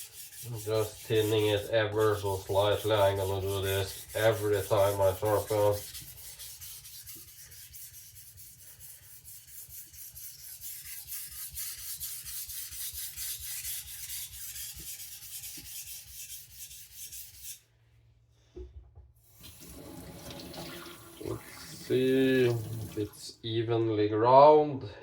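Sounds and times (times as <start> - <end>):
knife sharpening on whetstone: 9.1 - 17.6.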